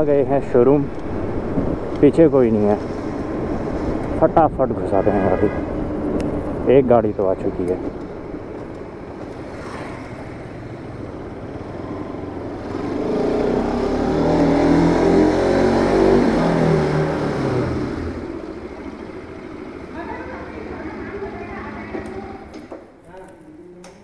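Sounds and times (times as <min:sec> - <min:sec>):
vehicle engine passing: 0:00.0 - 0:22.5.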